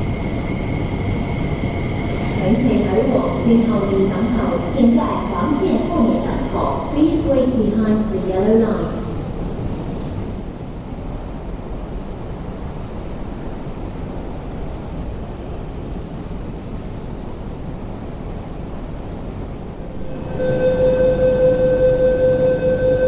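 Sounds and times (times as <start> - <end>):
train rumbling: 0.0 - 23.0
pulsing train door tone: 19.9 - 23.0.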